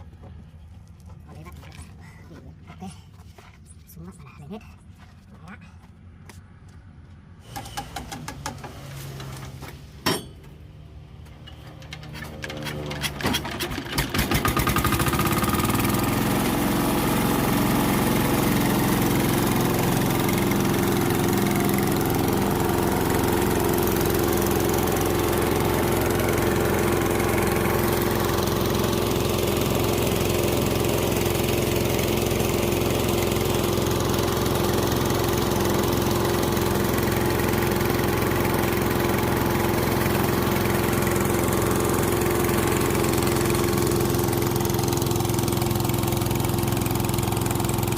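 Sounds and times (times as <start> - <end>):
engine starting and idling: 11.4 - 47.9.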